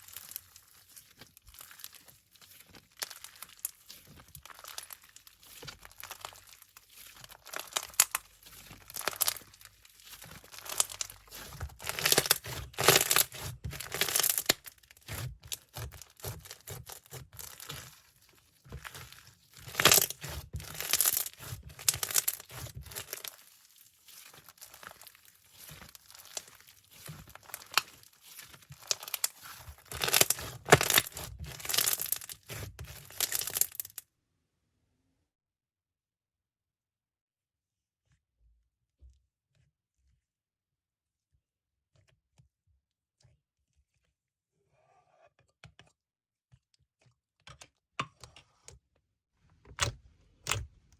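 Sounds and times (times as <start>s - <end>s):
packaging crinkling and tearing: 0.0s - 34.0s.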